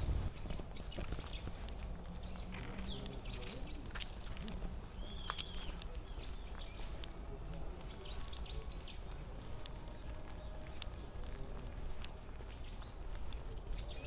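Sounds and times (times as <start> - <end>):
low background rumble: 0.0 - 5.3
small birds chirping: 0.3 - 14.0.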